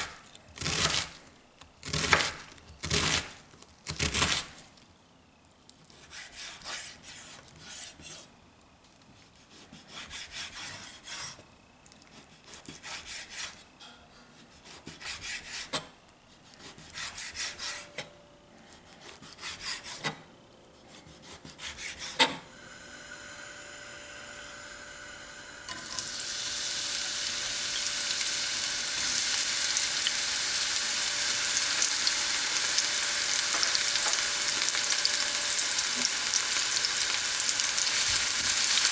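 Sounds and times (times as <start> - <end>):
scraping strokes: 16.4 - 20.2
food sizzling in a hot pan: 25.7 - 38.9.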